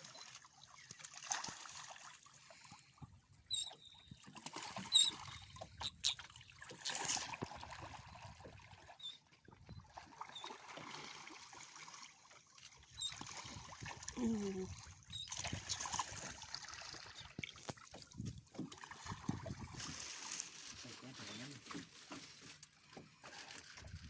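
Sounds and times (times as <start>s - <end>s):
water splashing and trickling: 0.0s - 24.0s
bird chirping: 3.5s - 4.2s.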